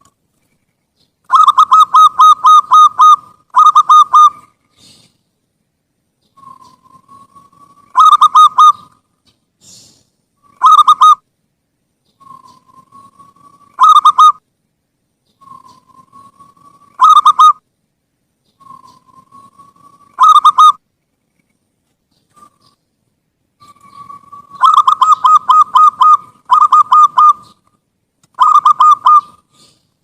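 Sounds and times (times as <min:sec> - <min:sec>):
dove cooing with ringing notes: 0:01.3 - 0:04.5, 0:06.4 - 0:08.9, 0:10.4 - 0:11.2, 0:12.2 - 0:14.4, 0:15.4 - 0:17.6, 0:18.6 - 0:20.8, 0:23.6 - 0:27.6, 0:28.4 - 0:29.8.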